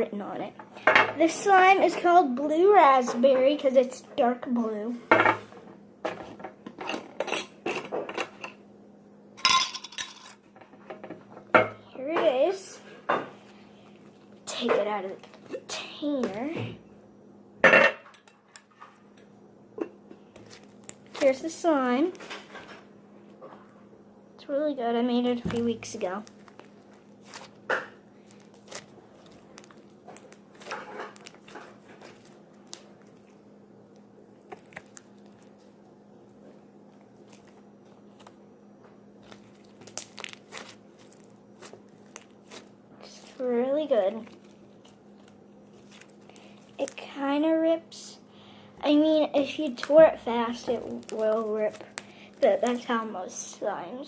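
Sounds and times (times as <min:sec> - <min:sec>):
faint steady hum: 0:00.0 - 0:54.0
slime squished by hands: 0:20.3 - 0:22.0, 0:25.5 - 0:33.4, 0:34.3 - 0:35.8, 0:39.2 - 0:47.3, 0:49.5 - 0:53.0.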